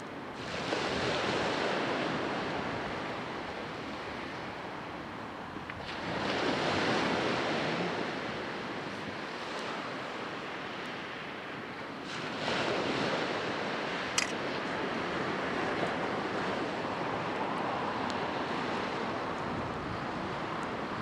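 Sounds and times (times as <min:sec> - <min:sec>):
sea waves washing onto shore: 0:00.0 - 0:21.0
sharp click: 0:14.2 - 0:14.4.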